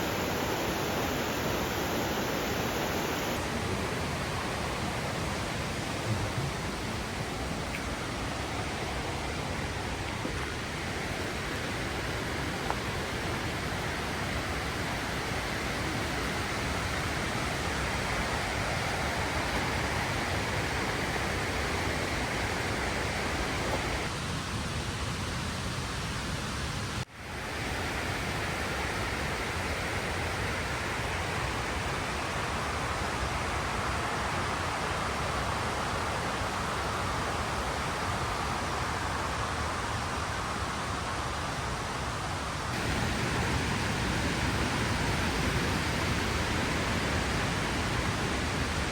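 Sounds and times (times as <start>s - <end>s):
waterfall rushing: 0.0s - 24.1s, 42.8s - 48.9s.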